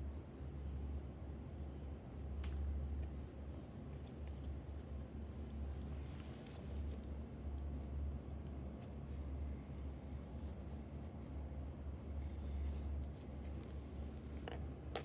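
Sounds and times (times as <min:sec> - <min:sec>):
steady low hum: 0:00.0 - 0:15.0
pencil scratching on paper: 0:08.8 - 0:11.4, 0:12.0 - 0:13.8.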